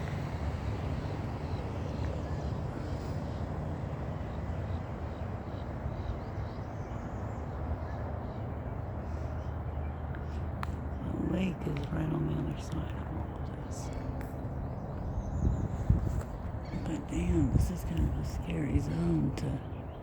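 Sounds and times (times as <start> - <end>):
wind on microphone: 11.0 - 20.0.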